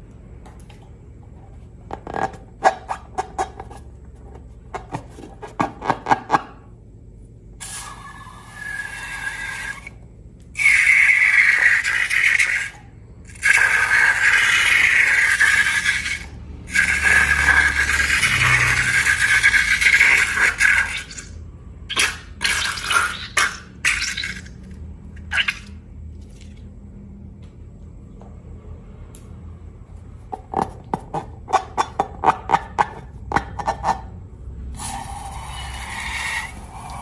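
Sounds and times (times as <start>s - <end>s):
liquid pouring: 10.6s - 21.3s, 21.9s - 26.6s.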